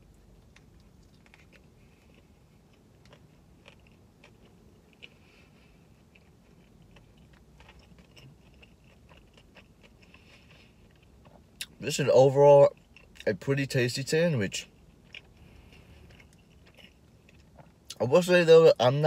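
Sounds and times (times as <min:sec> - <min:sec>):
chewing with mouth clicks: 0:00.2 - 0:11.8, 0:12.7 - 0:13.3, 0:14.6 - 0:18.0.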